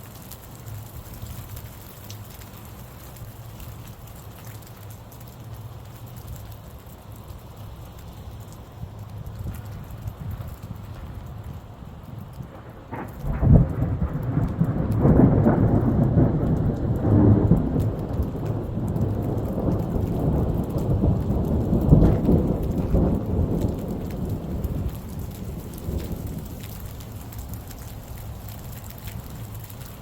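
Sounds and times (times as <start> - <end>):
rain falling: 0.0 - 30.0
raindrops ticking: 0.0 - 30.0
thunder rumbling: 8.7 - 30.0.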